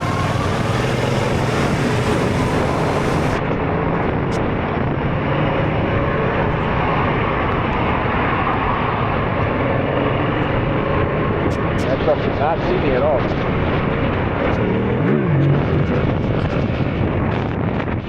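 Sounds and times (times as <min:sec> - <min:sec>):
road and wind noise: 0:00.0 - 0:18.0
vehicle engine running: 0:00.0 - 0:18.0.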